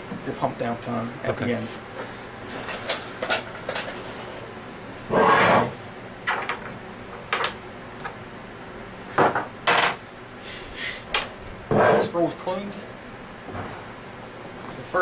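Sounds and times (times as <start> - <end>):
scraping of pump scroll: 5.1 - 5.8.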